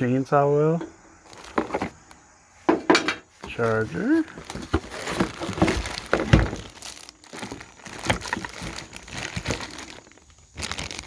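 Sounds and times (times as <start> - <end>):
plastic wrapping crinkling: 1.2 - 2.0, 3.4 - 11.0.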